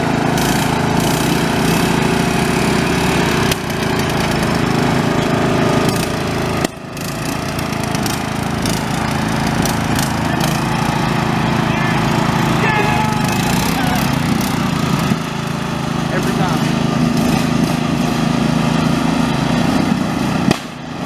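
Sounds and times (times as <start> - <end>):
riding lawn mower engines: 0.0 - 21.0.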